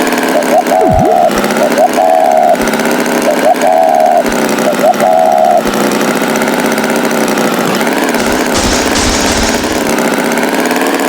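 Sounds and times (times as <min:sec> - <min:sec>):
tractor engine idling: 0:05.6 - 0:11.0.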